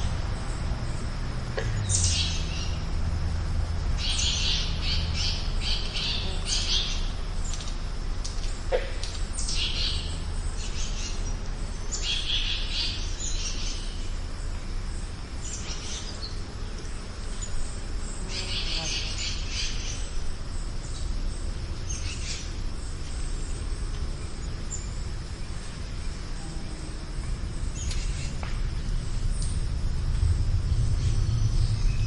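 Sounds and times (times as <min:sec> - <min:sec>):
steady low rumble: 0:00.0 - 0:18.3, 0:19.1 - 0:32.0
birds chattering calls: 0:03.9 - 0:07.8, 0:15.4 - 0:32.0.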